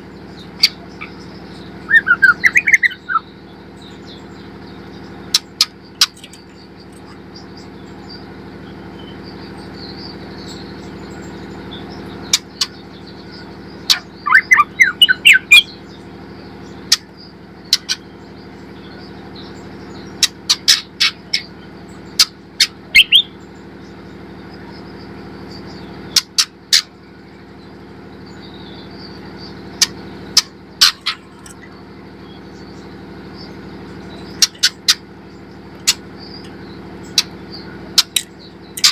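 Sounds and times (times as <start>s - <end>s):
bird chip calls: 0.0s - 38.9s
steady low hum: 0.0s - 38.9s
bird warbled phrase: 1.9s - 3.2s, 30.8s - 31.8s.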